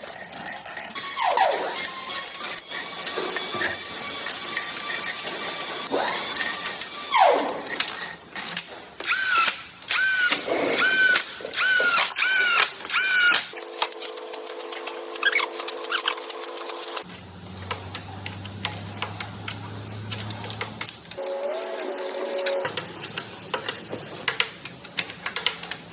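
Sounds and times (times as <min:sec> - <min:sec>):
power tool whining: 0:00.0 - 0:23.1
steady machine hum: 0:00.9 - 0:08.4.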